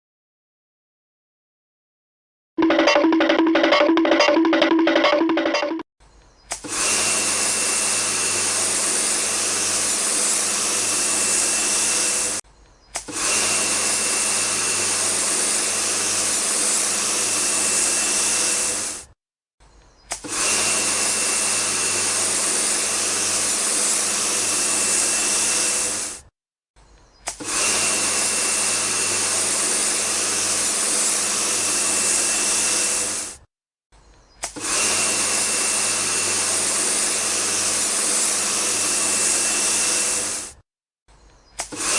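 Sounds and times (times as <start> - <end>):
small electric motor hissing: 6.5 - 12.4, 13.0 - 19.2, 20.0 - 26.3, 27.2 - 33.5, 34.4 - 40.6, 41.5 - 41.9.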